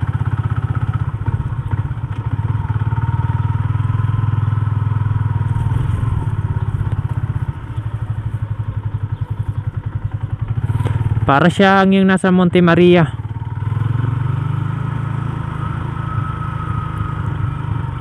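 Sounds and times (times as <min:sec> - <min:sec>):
motorcycle engine idling: 0:00.0 - 0:14.2.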